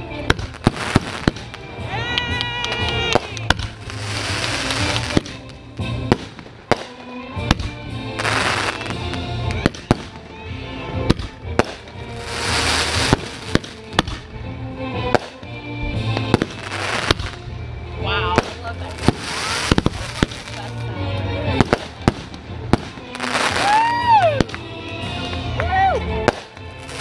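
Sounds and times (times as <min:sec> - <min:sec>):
crackling hiss of fireworks: 0:00.0 - 0:14.3, 0:15.1 - 0:17.5, 0:18.3 - 0:20.9, 0:21.5 - 0:24.6, 0:26.3 - 0:27.0
fireworks shells bursting: 0:03.1 - 0:10.2, 0:11.1 - 0:14.2, 0:18.4 - 0:20.7.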